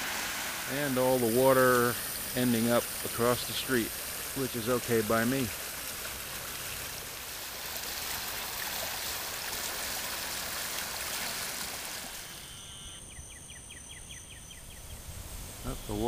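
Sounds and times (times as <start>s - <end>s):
water rushing through drains: 0.0s - 12.4s
insects chirping rapidly: 12.1s - 16.0s.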